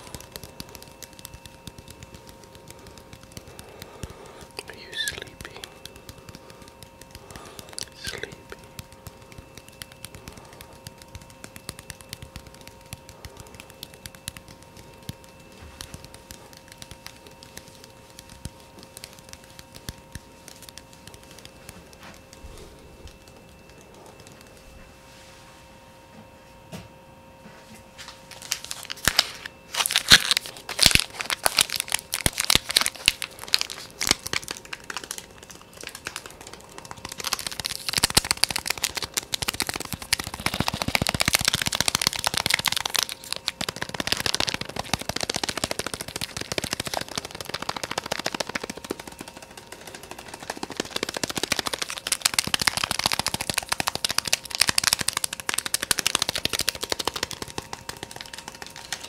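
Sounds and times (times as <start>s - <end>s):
fast tapping: 0.0s - 24.8s, 29.8s - 59.0s.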